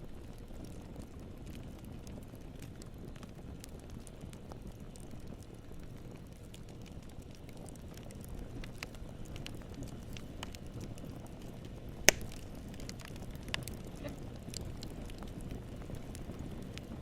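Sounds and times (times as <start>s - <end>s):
campfire rumble: 0.0s - 17.0s
wood crackling: 0.0s - 17.0s
sharp loud pop: 12.1s - 12.3s.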